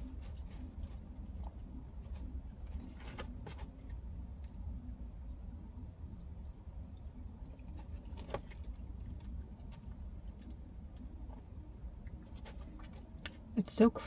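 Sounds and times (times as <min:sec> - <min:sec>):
low steady hum: 0:00.0 - 0:14.0
chewing and mouth clicks: 0:06.1 - 0:13.4.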